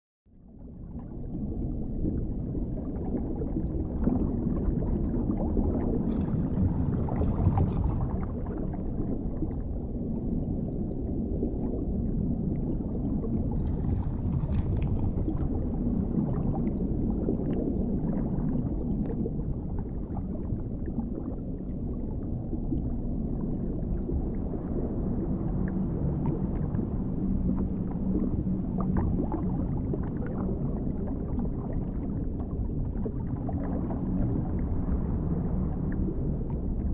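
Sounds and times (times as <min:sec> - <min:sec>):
muffled underwater rumble: 0:00.3 - 0:36.9
water gurgling: 0:00.4 - 0:36.9
faint crackles: 0:13.5 - 0:16.4.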